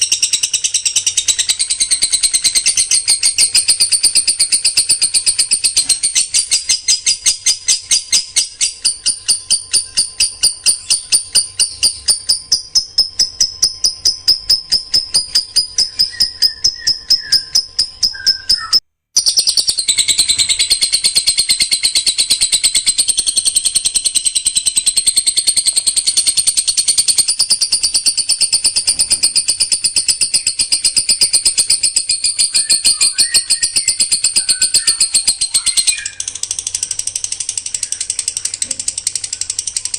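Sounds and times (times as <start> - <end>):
songbird harsh rapid calls: 28.5 - 39.8.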